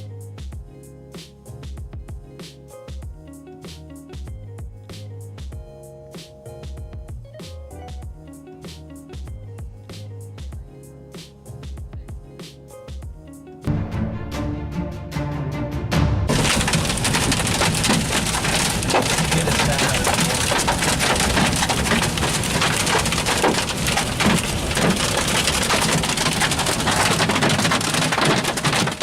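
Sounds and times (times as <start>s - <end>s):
background music: 0.0s - 29.0s
hail pelting a pickup truck: 16.3s - 29.0s.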